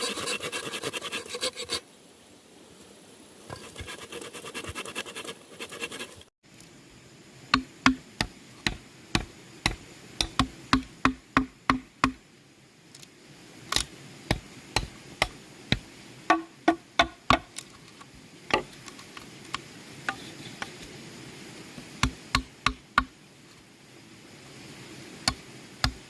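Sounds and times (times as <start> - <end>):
rasping scraping: 0.0 - 1.8, 3.5 - 6.3
hammer striking bamboo: 7.5 - 12.2, 14.3 - 17.5, 22.0 - 23.1.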